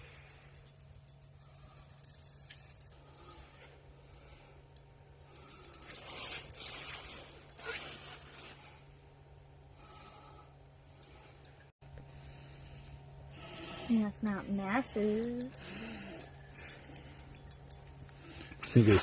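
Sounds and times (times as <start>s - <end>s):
steady low hum: 0.0s - 19.0s
scraping and rustling: 5.8s - 8.9s
fishing reel drag clicking: 13.5s - 17.8s.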